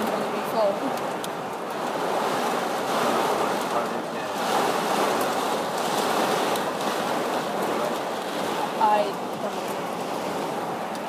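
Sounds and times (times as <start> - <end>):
heavy rain on a car roof: 0.0 - 11.0.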